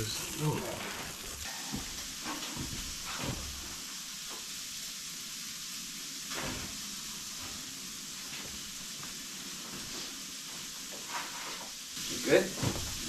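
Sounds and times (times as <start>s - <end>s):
sausages sizzling in a pan: 0.0s - 13.0s.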